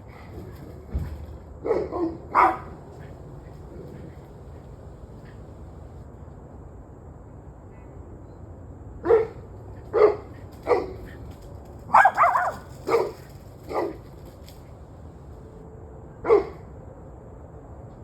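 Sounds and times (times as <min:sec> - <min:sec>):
low background noise: 0:00.0 - 0:08.8, 0:09.4 - 0:15.9
dog barking: 0:01.6 - 0:04.2, 0:09.1 - 0:09.4, 0:10.0 - 0:11.0, 0:11.9 - 0:14.0, 0:16.3 - 0:16.6.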